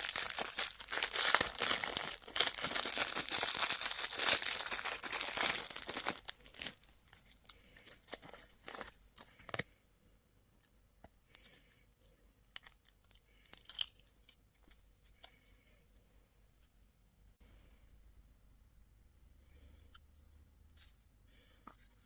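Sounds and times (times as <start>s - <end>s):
candy wrapper crinkling: 0.0s - 9.6s, 12.5s - 14.9s.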